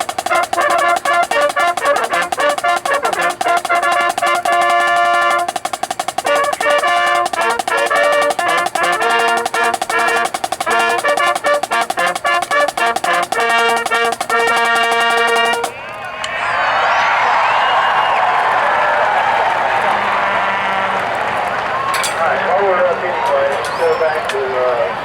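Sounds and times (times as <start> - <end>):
snare drum strokes: 0.0 - 15.8
brass chords: 0.0 - 16.0, 19.7 - 24.1
crowd noise: 0.0 - 25.0
applause: 16.3 - 23.2.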